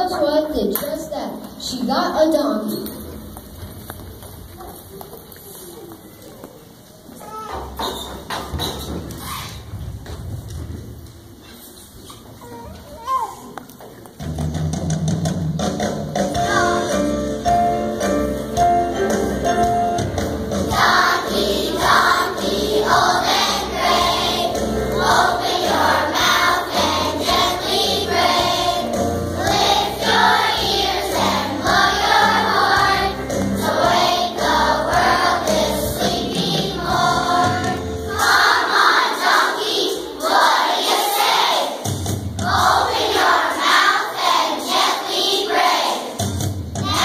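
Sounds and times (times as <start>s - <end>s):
instrumental accompaniment: 14.2s - 40.5s
children's choir singing: 16.3s - 18.1s, 20.1s - 47.0s.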